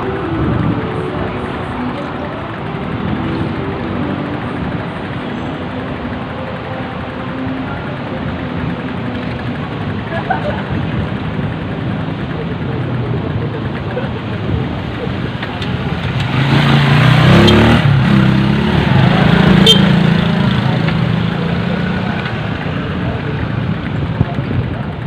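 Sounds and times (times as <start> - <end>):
road traffic: 0.0 - 25.0
vehicle engine passing close: 8.6 - 25.0.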